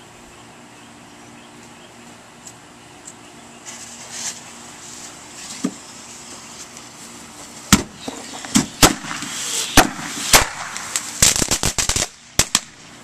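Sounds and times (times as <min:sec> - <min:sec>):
firecrackers banging: 0:07.4 - 0:12.8.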